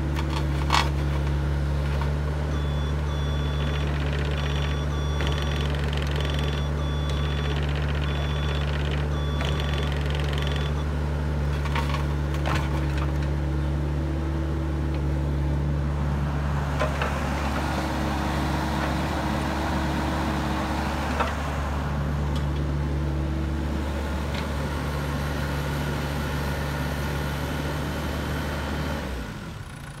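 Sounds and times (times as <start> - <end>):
diesel engine running: 0.0 - 30.0
warning alarm beeping: 2.5 - 10.8.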